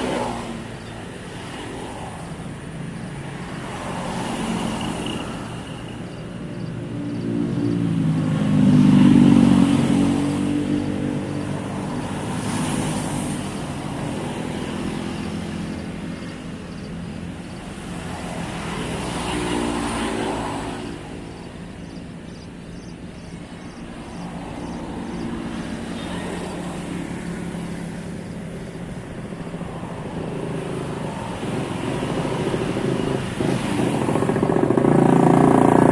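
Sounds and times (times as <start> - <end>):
motor vehicles passing: 0.0 - 35.9.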